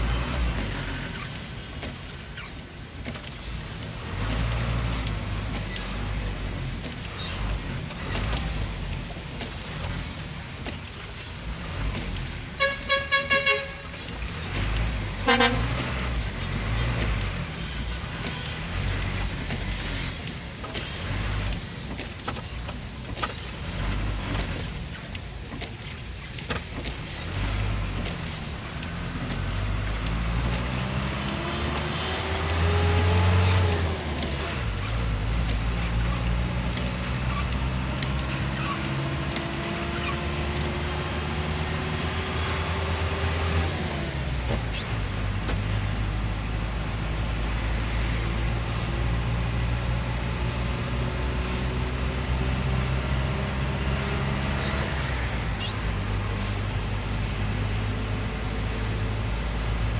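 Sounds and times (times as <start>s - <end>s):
road traffic engines: 0.0s - 59.9s
vehicle accelerating: 26.5s - 59.9s.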